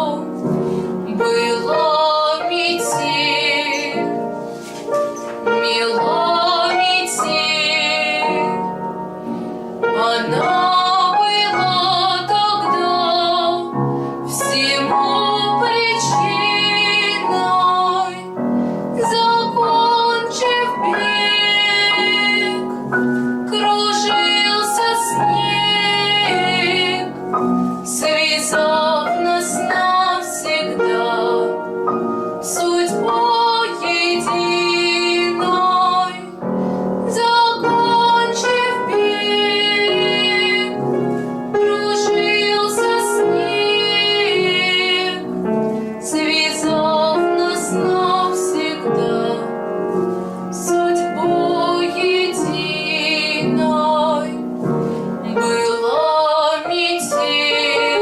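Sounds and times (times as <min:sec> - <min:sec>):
woman singing with vibrato: 0:00.0 - 0:04.3, 0:05.4 - 0:08.8, 0:09.8 - 0:18.4, 0:19.0 - 0:31.7, 0:32.4 - 0:36.4, 0:37.1 - 0:45.4, 0:46.0 - 0:49.6, 0:50.5 - 0:54.5, 0:55.2 - 0:58.0
piano accompaniment: 0:00.0 - 0:58.0
singer breathing: 0:00.6 - 0:01.1, 0:36.5 - 0:37.0, 0:54.8 - 0:55.2.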